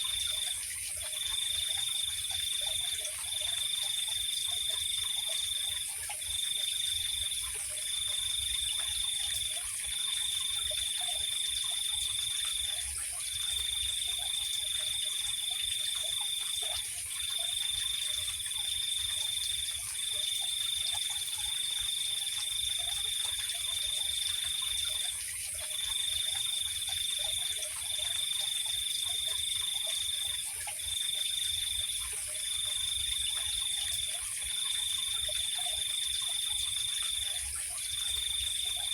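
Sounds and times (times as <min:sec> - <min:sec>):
cricket trilling: 0:00.0 - 0:38.9.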